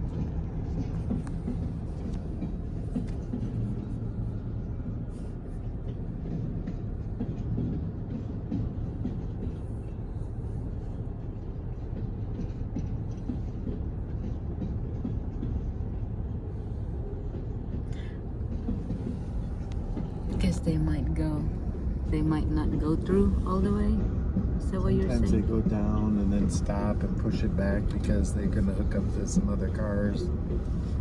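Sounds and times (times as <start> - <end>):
train rumbling: 0.0 - 31.0.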